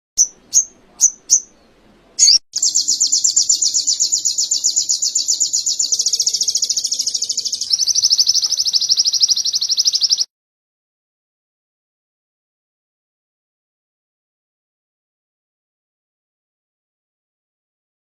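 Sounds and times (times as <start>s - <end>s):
bird chirping and trilling: 0.2s - 10.3s.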